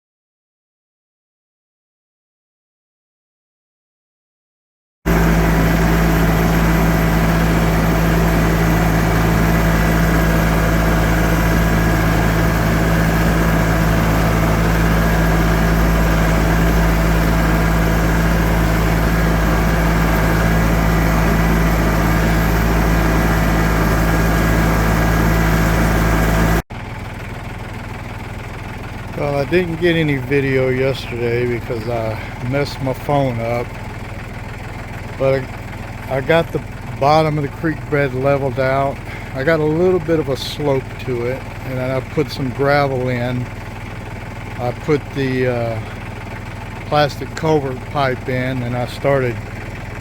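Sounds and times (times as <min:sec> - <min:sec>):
tractor engine running: 0:05.1 - 0:50.0.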